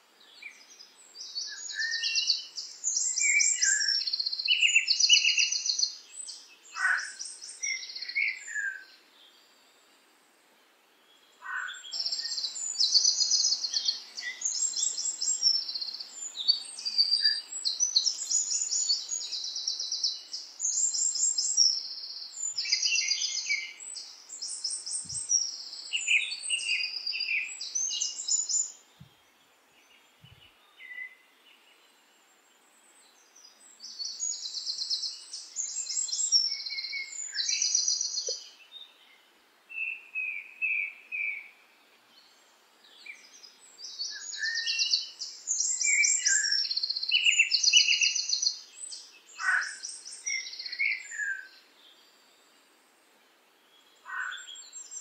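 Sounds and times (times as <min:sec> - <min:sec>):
birdsong trills and chirps: 0:00.2 - 0:09.9, 0:11.0 - 0:52.8, 0:53.6 - 0:55.0.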